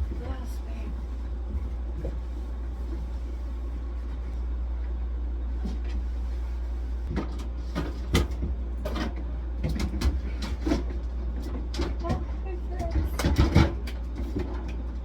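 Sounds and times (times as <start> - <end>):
steady low hum: 0.0 - 15.0
knocks and clatter of objects: 7.0 - 15.0.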